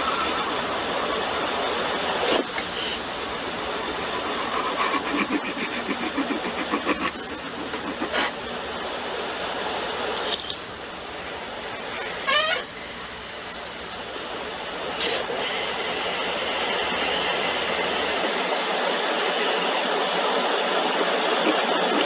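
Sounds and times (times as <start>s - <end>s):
quick rhythmic clatter: 0.0s - 15.8s
car wash spray and machinery: 0.0s - 22.0s.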